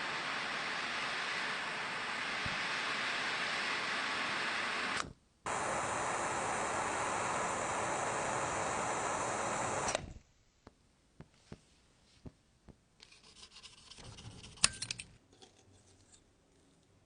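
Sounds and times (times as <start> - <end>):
loud hiss: 0.0 - 10.2.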